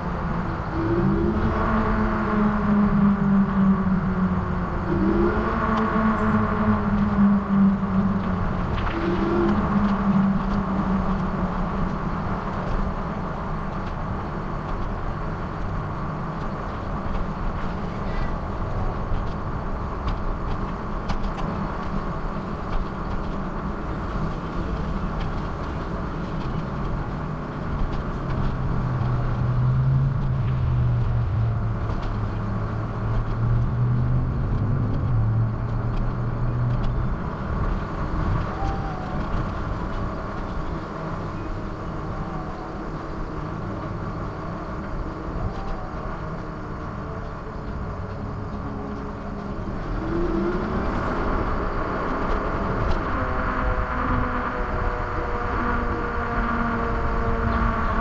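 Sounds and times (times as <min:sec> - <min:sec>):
low droning hum: 0:00.0 - 0:58.0
road and wind noise while cycling: 0:00.0 - 0:58.0.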